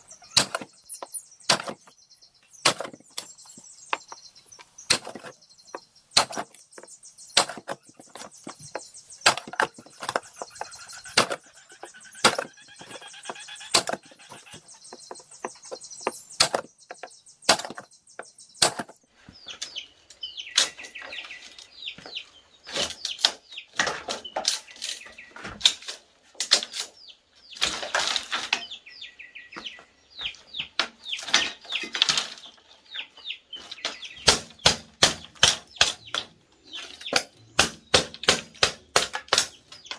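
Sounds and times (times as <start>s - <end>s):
hand tools striking wood: 0.3s - 2.0s, 2.6s - 19.0s, 33.6s - 39.9s.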